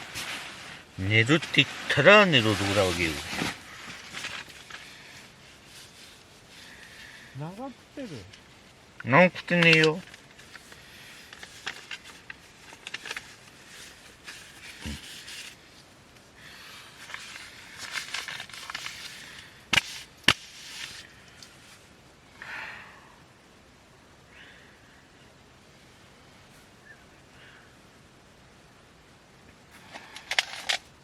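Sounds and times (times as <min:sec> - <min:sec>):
quiet rustling: 0:00.0 - 0:22.1.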